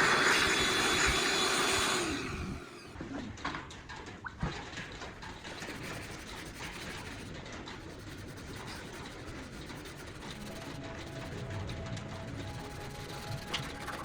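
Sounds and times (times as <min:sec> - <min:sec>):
faint steady tones: 0:05.0 - 0:14.0
abrasive rubbing: 0:05.2 - 0:14.0.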